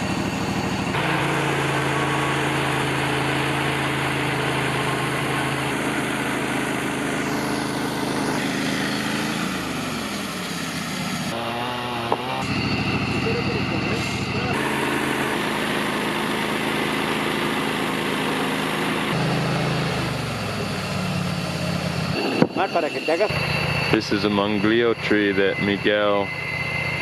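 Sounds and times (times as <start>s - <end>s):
sawmill engine sawing a log: 0.0s - 27.0s.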